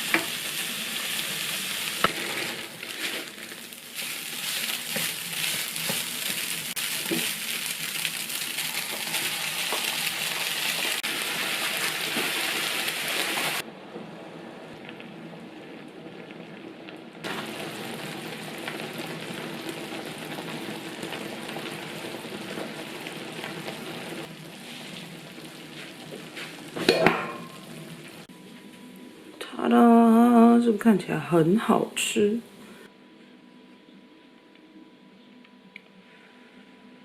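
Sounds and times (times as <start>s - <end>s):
food sizzling in a pan: 0.0s - 13.6s, 17.3s - 28.3s.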